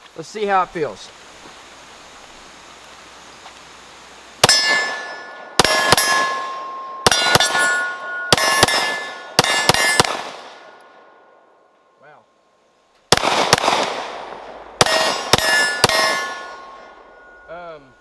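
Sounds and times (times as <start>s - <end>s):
pistol shots: 4.4s - 10.8s, 13.1s - 17.4s
steel targets ringing: 4.4s - 10.8s, 14.8s - 18.0s.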